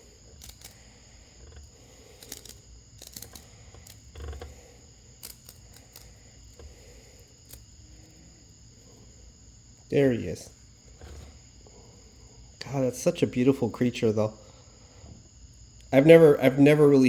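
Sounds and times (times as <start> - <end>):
fingers clicking and rustling: 0.0 - 8.1.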